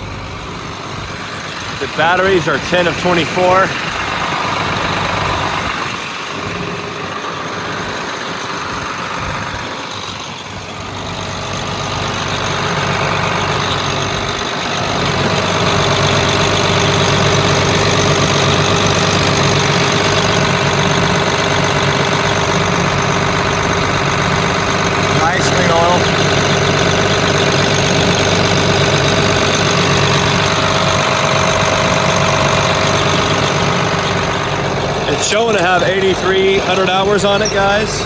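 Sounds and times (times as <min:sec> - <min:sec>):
diesel tractor idling: 0:00.0 - 0:38.0.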